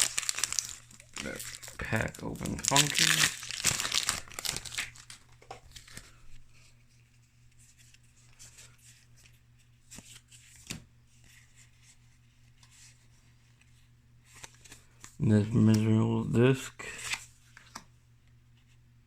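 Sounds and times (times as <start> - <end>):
trading cards rustling and clicking: 0.0 - 6.2
low electrical hum: 0.0 - 19.0.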